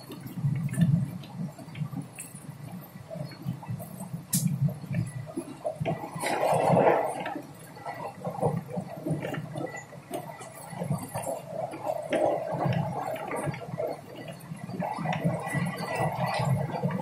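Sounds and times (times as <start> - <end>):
rattles and clicks: 0.0 - 17.0
train rumble inside carriage: 0.0 - 17.0.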